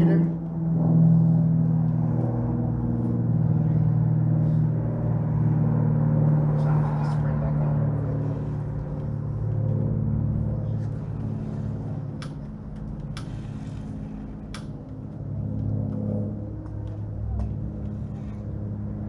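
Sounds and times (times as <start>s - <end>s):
small engine idling: 10.2s - 18.6s.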